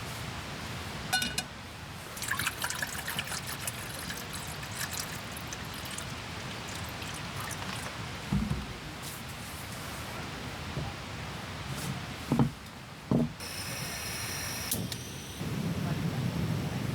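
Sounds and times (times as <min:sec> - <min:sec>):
short clink: 0:01.1 - 0:01.5
water trickling: 0:02.1 - 0:08.8.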